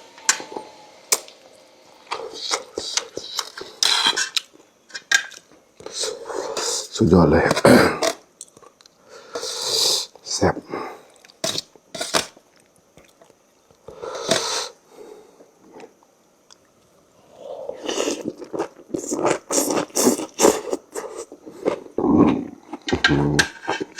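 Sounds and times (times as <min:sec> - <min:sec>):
person chewing noodles: 0:17.3 - 0:22.9.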